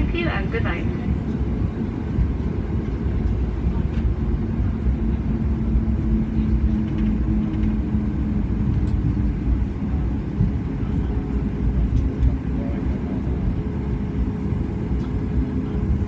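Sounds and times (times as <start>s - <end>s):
aircraft cabin rumble: 0.0s - 16.0s
jet engines idling: 0.0s - 16.0s.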